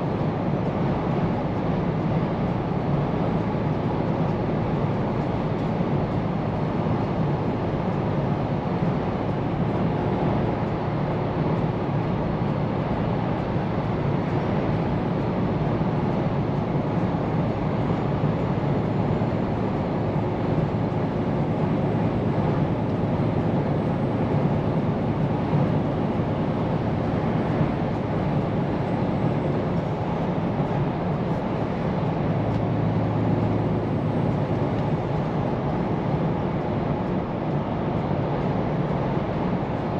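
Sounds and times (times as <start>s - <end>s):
tyre road noise: 9.3s - 39.9s
truck engine droning: 17.5s - 36.3s.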